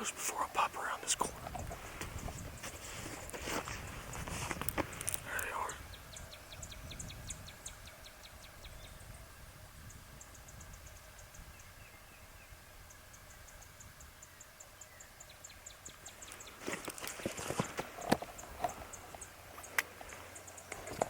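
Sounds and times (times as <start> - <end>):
bird ticking notes: 17.6 - 21.0.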